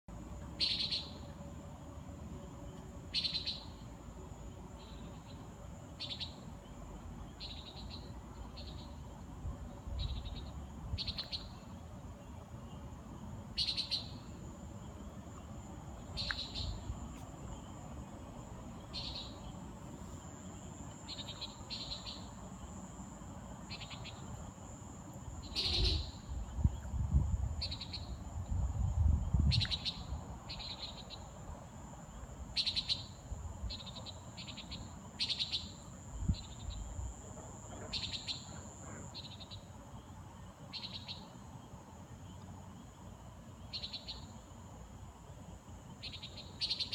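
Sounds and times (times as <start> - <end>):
insect trill: 0.1 - 46.9
nighthawk calls: 0.6 - 1.2, 13.6 - 14.2, 18.9 - 19.4, 25.4 - 26.3, 32.6 - 33.1.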